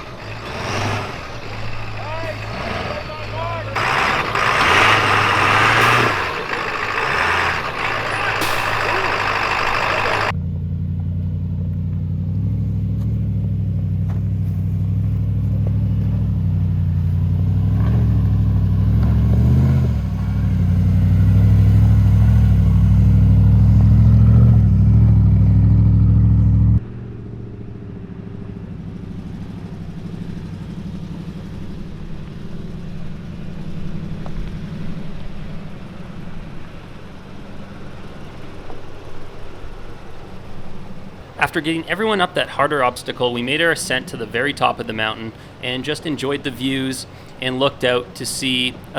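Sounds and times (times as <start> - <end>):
loud rough noise: 0.0 - 10.3
off-road engine running at low revs: 0.0 - 41.5.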